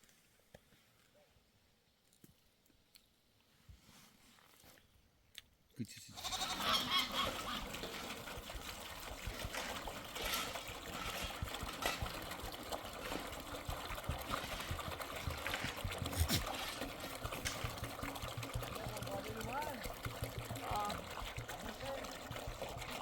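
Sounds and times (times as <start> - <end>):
liquid trickling: 6.4 - 23.0.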